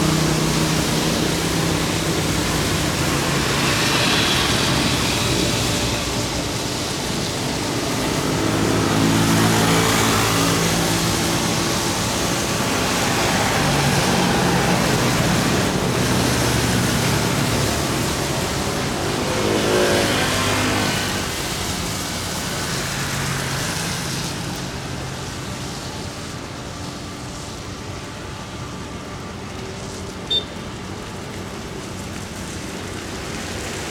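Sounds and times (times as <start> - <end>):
jet engines roaring: 0.0 - 25.0.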